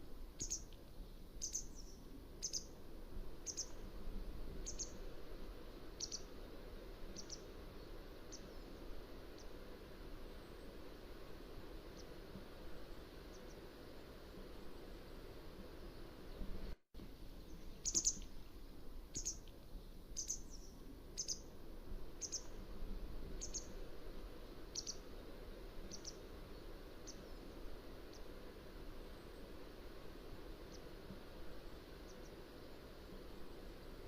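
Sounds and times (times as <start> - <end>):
low background hiss: 0.0 - 34.0
wagtail calling: 0.4 - 0.7, 1.4 - 2.7, 3.4 - 3.8, 4.6 - 5.0, 6.0 - 6.3, 7.1 - 7.5, 17.8 - 18.3, 19.1 - 19.4, 20.2 - 21.5, 22.2 - 22.5, 24.8 - 25.0, 25.9 - 26.3.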